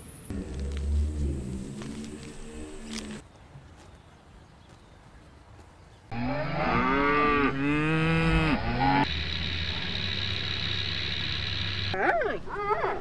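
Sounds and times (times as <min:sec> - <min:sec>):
cattle mooing: 0:06.1 - 0:09.1
steady hum with high whine: 0:09.1 - 0:12.0.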